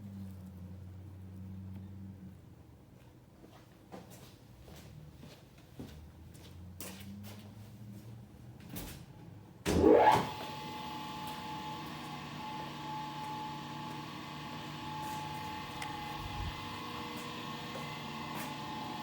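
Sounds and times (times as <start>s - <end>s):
grinder spinning up and whining: 9.8s - 19.0s.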